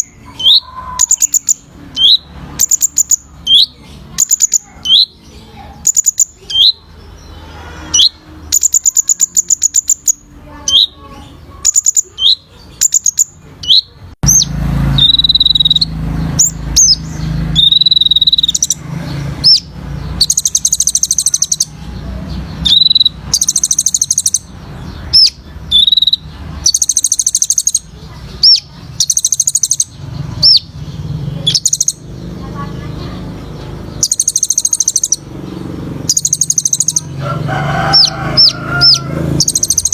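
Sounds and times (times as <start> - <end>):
bird whistling and trilling: 0.0 - 5.2, 7.9 - 18.8, 19.4 - 21.8, 22.6 - 30.8, 31.4 - 32.1, 34.0 - 35.3, 36.1 - 37.1, 38.0 - 39.9.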